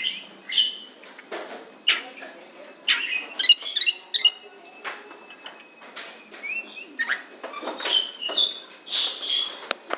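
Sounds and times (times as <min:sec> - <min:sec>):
bird singing high chirps: 0:00.0 - 0:00.9, 0:02.9 - 0:05.6, 0:06.3 - 0:09.6.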